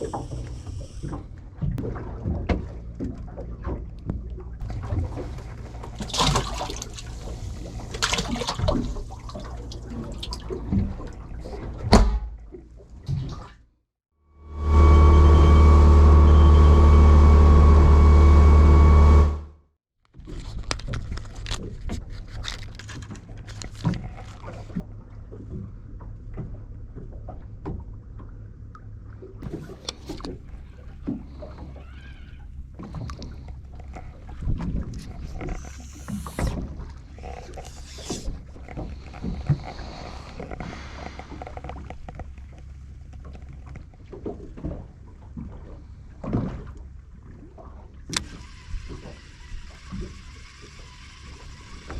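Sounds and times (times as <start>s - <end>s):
boat engine running loudly: 14.3s - 19.6s
low steady hum: 14.3s - 19.6s.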